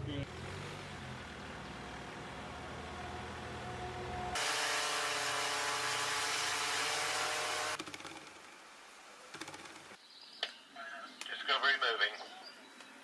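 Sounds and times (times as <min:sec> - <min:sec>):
loud rushing whir: 0:01.8 - 0:07.8.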